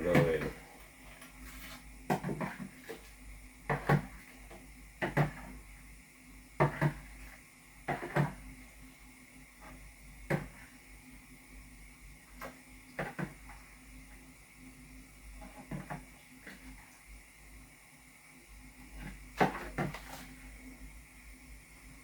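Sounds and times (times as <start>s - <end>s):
kitchen items knocking and clattering: 2.1s - 3.0s, 3.7s - 4.3s, 6.6s - 7.1s.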